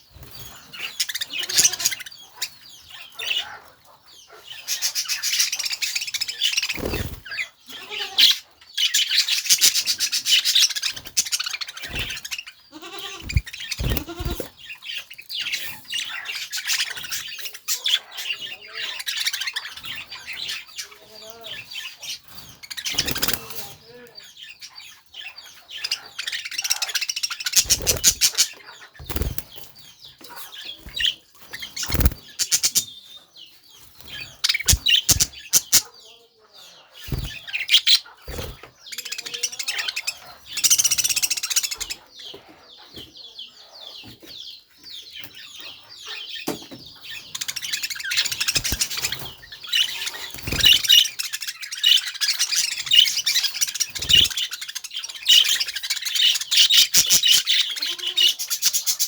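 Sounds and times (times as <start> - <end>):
budgerigars chirping and chattering: 0.0 - 59.0
wings flapping: 6.6 - 7.3, 10.9 - 12.4, 13.0 - 14.6, 22.8 - 23.7, 27.6 - 29.7, 30.9 - 32.7, 34.1 - 35.8, 47.4 - 49.4, 50.0 - 51.2.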